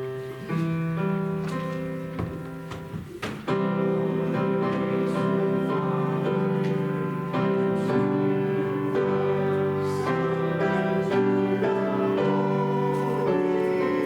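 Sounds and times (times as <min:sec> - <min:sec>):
church music on keyboard: 0:00.0 - 0:14.0.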